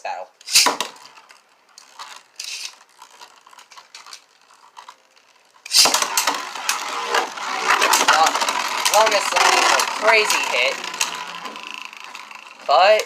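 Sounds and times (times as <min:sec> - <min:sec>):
loud spinning top launch: 0:00.4 - 0:01.2, 0:05.7 - 0:12.6
plastic clicking and ratcheting: 0:00.4 - 0:13.0
spinning tops whirring and scraping: 0:00.4 - 0:13.0.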